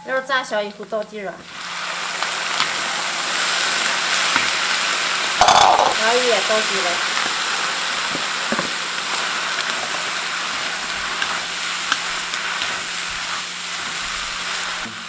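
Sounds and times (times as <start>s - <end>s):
food sizzling in a pan: 0.8s - 15.0s
stirring knocks: 5.4s - 6.0s.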